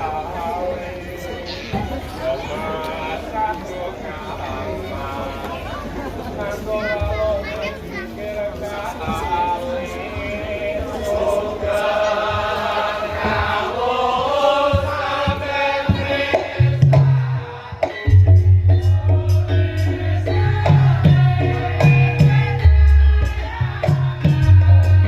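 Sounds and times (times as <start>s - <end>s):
heavy low drum strokes: 11.5s - 25.0s.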